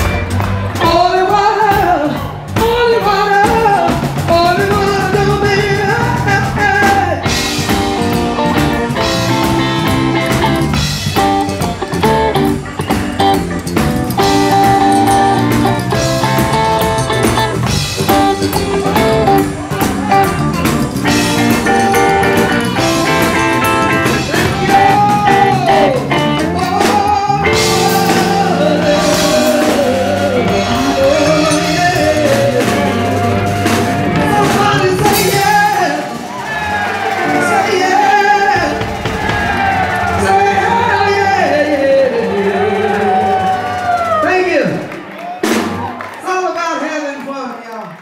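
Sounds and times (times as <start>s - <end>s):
blues band with guitar and drums: 0.0s - 46.2s
woman singing: 0.8s - 7.2s, 24.2s - 36.0s.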